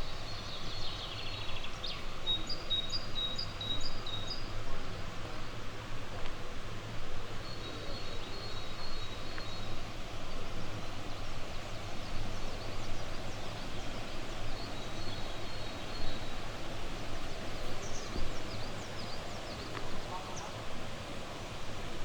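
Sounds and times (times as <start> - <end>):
river flowing: 8.0 - 22.0.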